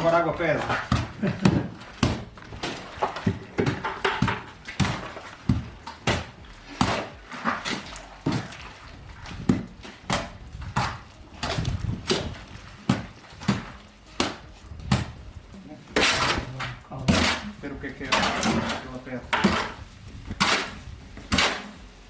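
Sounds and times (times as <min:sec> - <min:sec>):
irregular knocks and clatters: 0:00.0 - 0:15.3.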